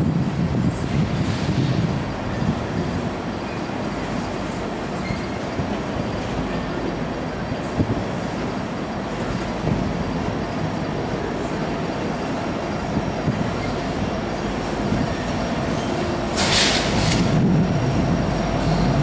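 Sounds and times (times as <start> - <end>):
diesel locomotives: 0.0 - 19.0
freight cars rumbling on rails: 0.0 - 19.0
loud hiss: 15.8 - 17.6.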